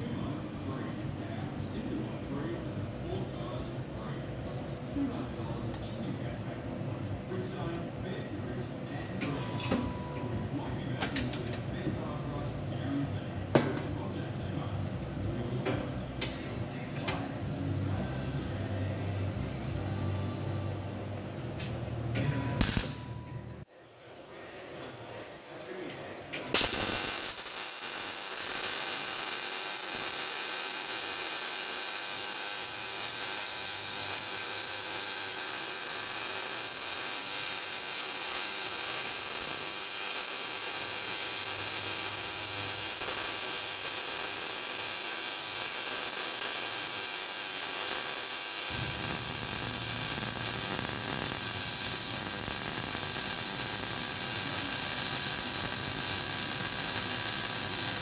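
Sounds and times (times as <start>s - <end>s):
welding arc crackling hiss: 22.2s - 23.2s, 26.3s - 58.0s
welding arc striking crack: 22.2s - 23.2s, 26.4s - 58.0s.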